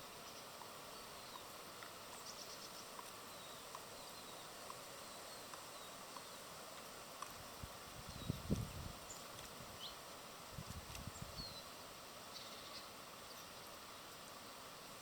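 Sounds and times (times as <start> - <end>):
outdoor background hiss: 0.0 - 15.0
small birds chirping: 0.0 - 15.0
light ticks: 5.4 - 7.4.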